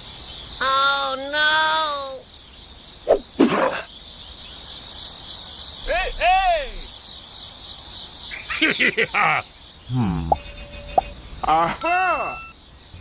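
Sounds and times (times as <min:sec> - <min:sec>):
insect chirring: 0:00.0 - 0:13.0
voice-like calls: 0:05.8 - 0:06.9, 0:08.4 - 0:12.5.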